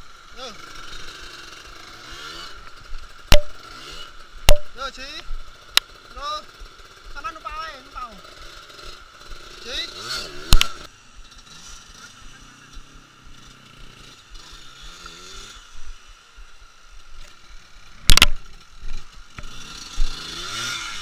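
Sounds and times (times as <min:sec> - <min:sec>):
motorcycle engine revving: 0:00.0 - 0:21.0
loud sharp knocks: 0:03.3 - 0:03.6, 0:04.5 - 0:04.8.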